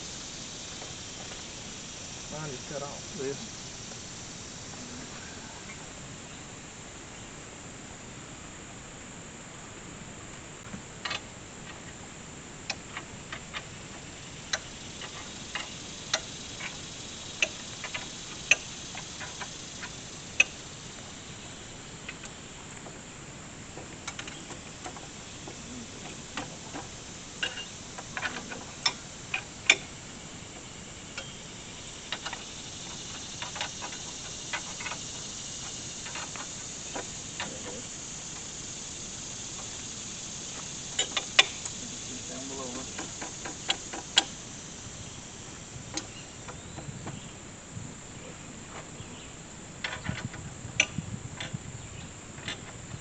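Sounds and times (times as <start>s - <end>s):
faint high hiss: 0.0s - 53.0s
metal tools clicking and tapping: 26.0s - 29.8s, 40.9s - 41.8s.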